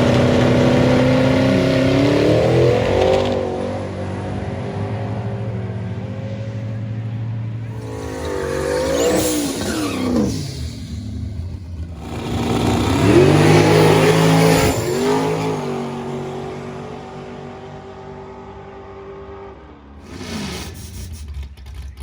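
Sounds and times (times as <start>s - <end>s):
drag racing engines revving: 0.0s - 22.0s.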